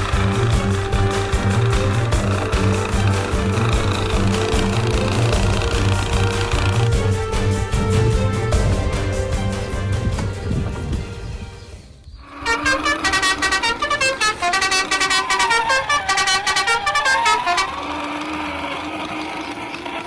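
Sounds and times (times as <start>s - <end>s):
vehicle horns honking: 12.3s - 18.6s.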